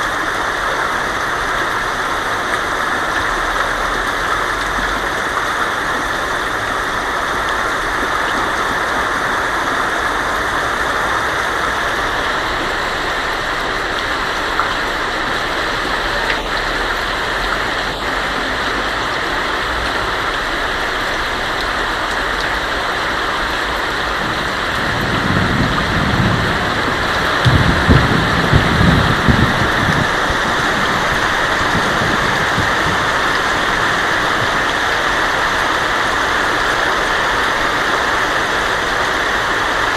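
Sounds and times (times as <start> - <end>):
heavy rain on a tin roof: 0.0 - 39.9
thunder rumbling: 10.0 - 36.3.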